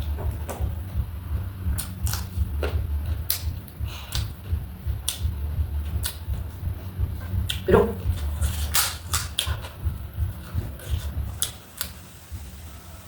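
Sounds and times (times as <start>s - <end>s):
low rumble: 0.0s - 13.0s
food chewing and crunching: 1.6s - 12.0s.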